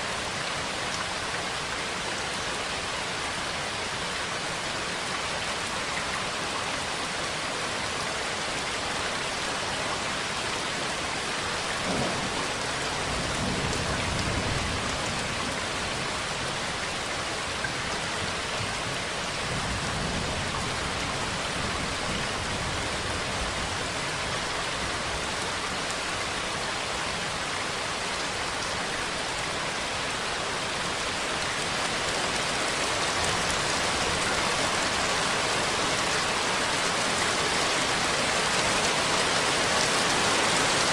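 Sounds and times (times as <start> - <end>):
steady rain: 0.0 - 40.9
thunder rumbling: 11.8 - 15.4.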